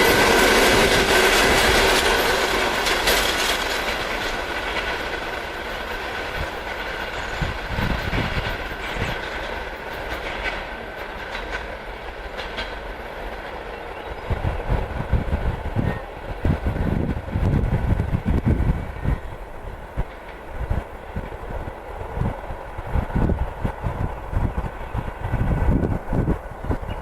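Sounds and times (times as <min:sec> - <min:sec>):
wheels clacking over rail joints: 0:00.0 - 0:21.6
railway cars rolling on track: 0:00.0 - 0:27.0.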